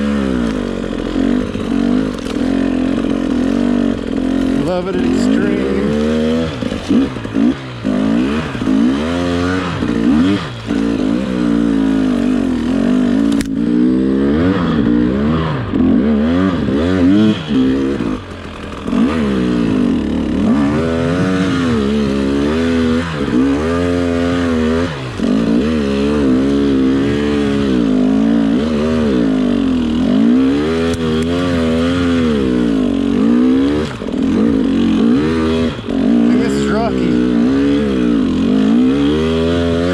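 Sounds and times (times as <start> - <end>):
dirt bike engine revving: 0.0 - 39.9
sharp click: 13.3 - 13.6.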